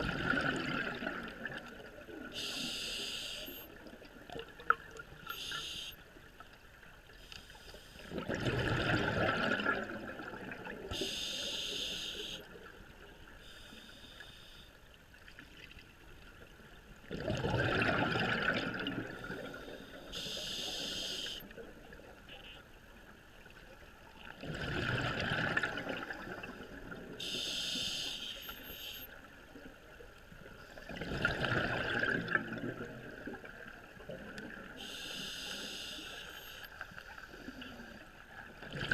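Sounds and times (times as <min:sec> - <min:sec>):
exhaled bubbles gurgling: 0:00.0 - 0:02.6, 0:08.0 - 0:11.2, 0:17.0 - 0:22.2, 0:24.2 - 0:27.2, 0:30.8 - 0:35.0, 0:37.4 - 0:38.9
regulator hiss: 0:02.4 - 0:03.6, 0:05.3 - 0:06.0, 0:11.0 - 0:12.5, 0:19.6 - 0:21.4, 0:27.2 - 0:29.1, 0:34.8 - 0:36.6.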